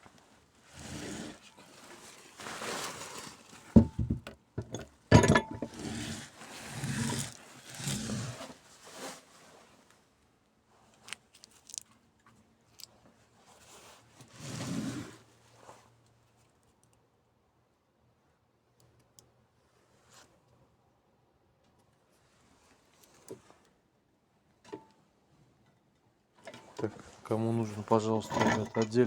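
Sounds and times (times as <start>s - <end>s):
scraping and rustling: 0.6s - 9.9s, 26.5s - 29.0s
metal parts clanking: 3.8s - 5.8s, 28.0s - 29.0s.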